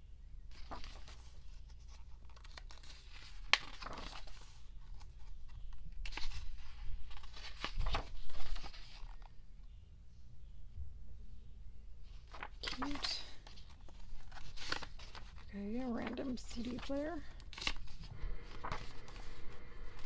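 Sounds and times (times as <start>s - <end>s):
packaging crinkling and rustling: 0.5s - 9.4s, 12.3s - 20.0s.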